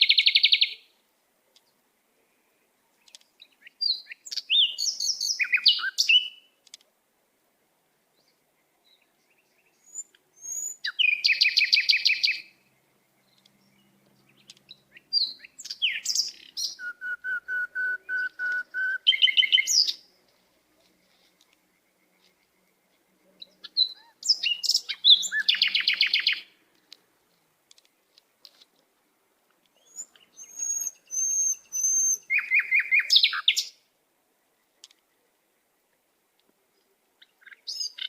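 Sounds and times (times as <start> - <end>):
songbird singing: 0.0 - 38.0.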